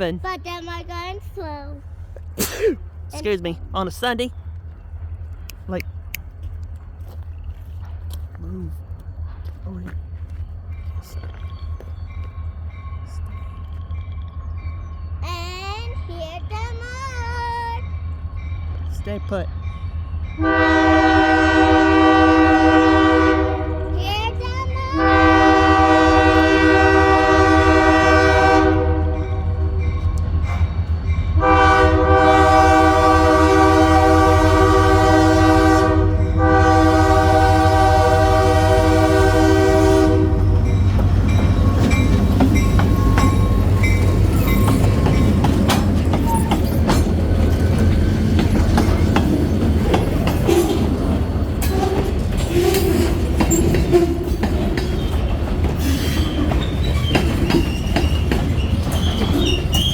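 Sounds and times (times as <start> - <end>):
diesel engines rumbling: 0.0 - 59.9
locomotive air horn blasts: 20.4 - 24.0, 25.0 - 29.8, 31.4 - 40.8
wheels clacking over rail joints: 34.8 - 59.9.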